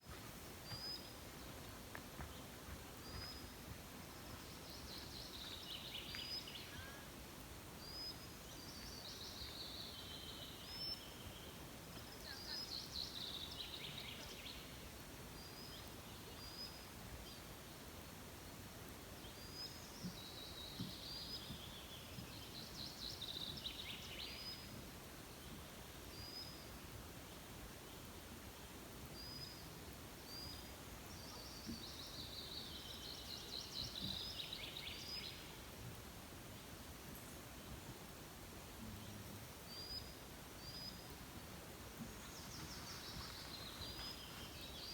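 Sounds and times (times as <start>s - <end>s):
songbirds singing: 7.8s - 17.8s, 19.2s - 28.1s, 29.2s - 35.7s, 38.9s - 44.9s.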